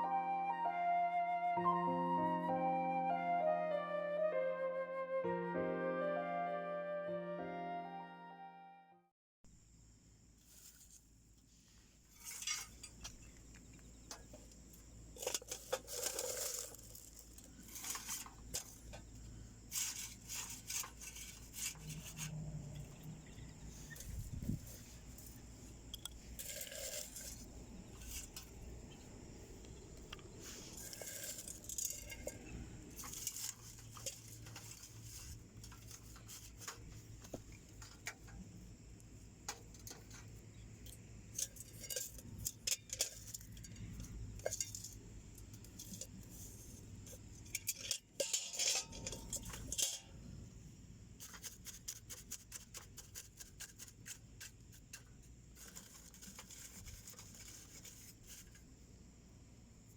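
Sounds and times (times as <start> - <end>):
wood fire crackling in stove: 10.5 - 23.0.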